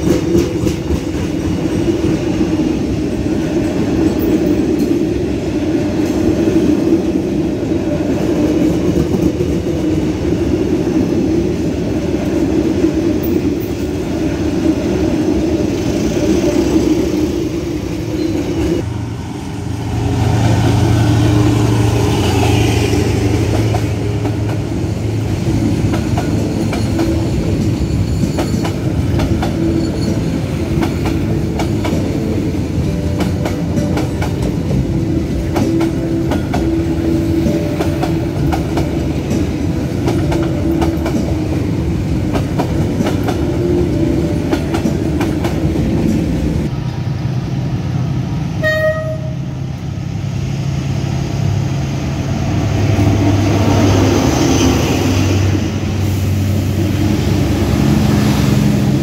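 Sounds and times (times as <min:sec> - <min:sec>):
train wheels clacking over rail joints: 0:00.0 - 0:01.9, 0:23.2 - 0:43.7
diesel locomotive engine: 0:00.0 - 0:59.0
short high train horn toot: 0:48.6 - 0:49.5.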